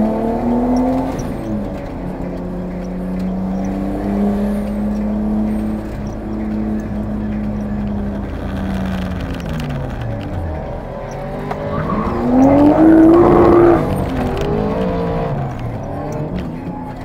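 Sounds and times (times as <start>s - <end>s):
car engine revving: 0.0s - 17.0s
tyre squeal: 8.2s - 16.8s.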